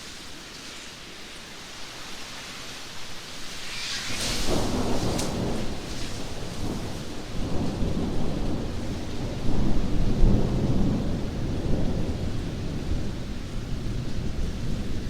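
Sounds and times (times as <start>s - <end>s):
heavy downpour: 0.0s - 15.0s
thunder rumbling: 3.5s - 15.0s
sharp thunder crack: 3.9s - 11.8s.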